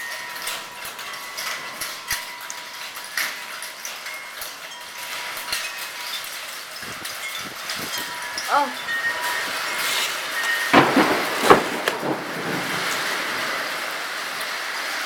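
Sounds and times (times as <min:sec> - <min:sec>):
hail hissing: 0:03.2 - 0:15.0
sharp hailstone impacts: 0:09.6 - 0:13.6.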